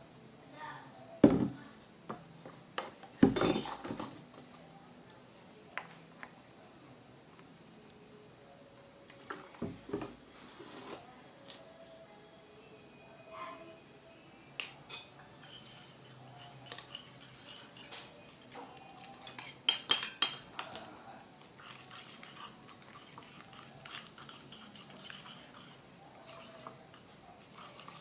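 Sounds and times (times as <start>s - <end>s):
utensil scraping a bowl: 15.4s - 20.8s, 21.6s - 28.0s.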